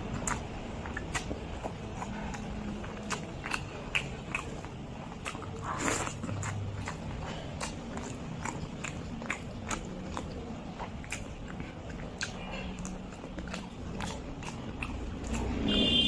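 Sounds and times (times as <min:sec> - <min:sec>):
wet chewing and mouth clicks: 0:00.0 - 0:16.0.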